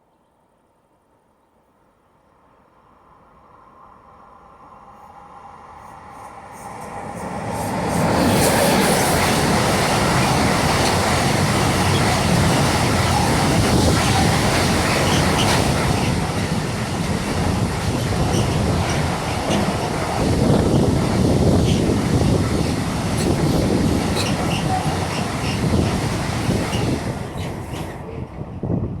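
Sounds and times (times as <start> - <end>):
train wheels rumbling on rails: 5.8 - 29.0.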